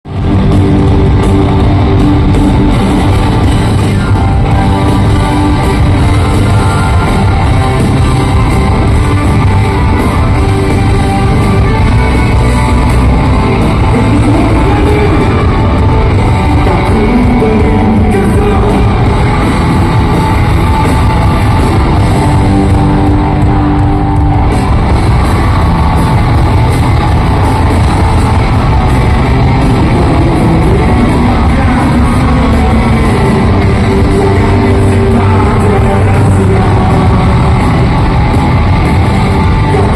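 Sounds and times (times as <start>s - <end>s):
drums: 0.0s - 39.9s
electric guitar: 0.0s - 39.9s
live rock band playing: 0.1s - 39.9s
person singing: 3.6s - 20.2s, 29.5s - 38.3s.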